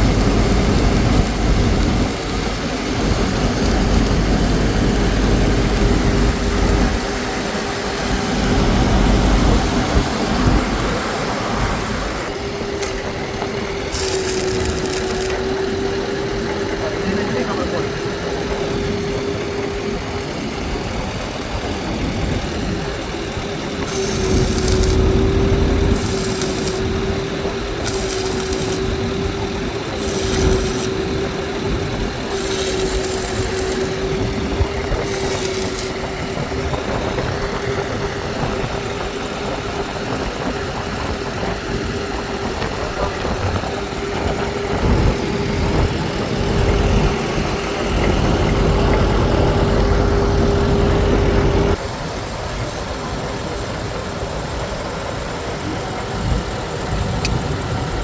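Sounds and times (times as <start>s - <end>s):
engine idling: 0.0s - 58.0s
short hissing bursts: 23.8s - 27.1s, 27.8s - 29.1s, 29.9s - 31.3s, 32.2s - 34.2s.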